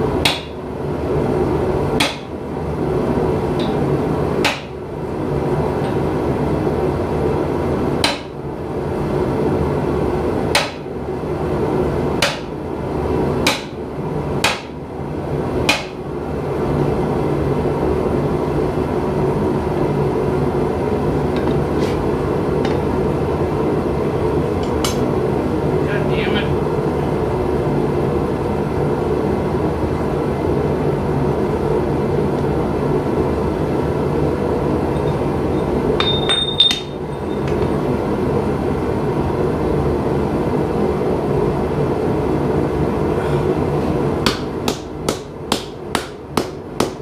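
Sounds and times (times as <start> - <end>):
hammer striking steel on anvil: 24.6 - 25.0, 36.0 - 37.6, 44.2 - 47.0.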